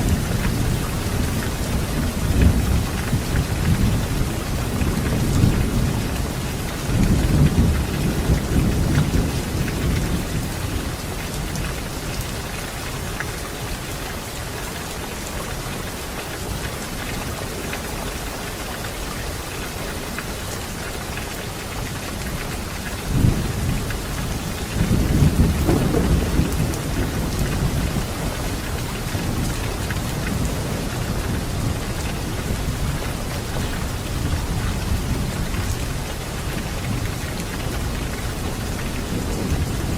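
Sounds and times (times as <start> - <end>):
steady rain falling: 0.0 - 39.9
thunder rumbling: 23.1 - 39.9.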